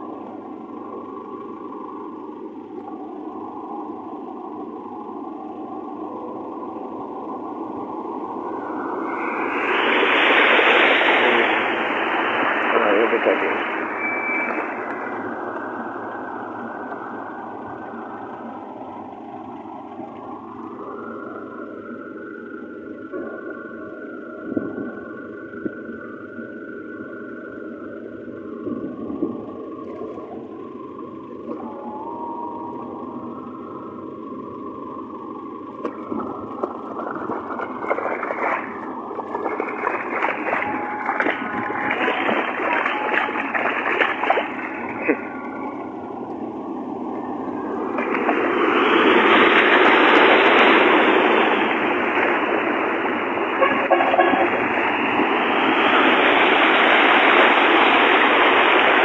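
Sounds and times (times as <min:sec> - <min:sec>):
car engine and road noise: 0:00.0 - 0:59.0
tyres splashing through water: 0:35.8 - 0:46.3, 0:47.0 - 0:59.0.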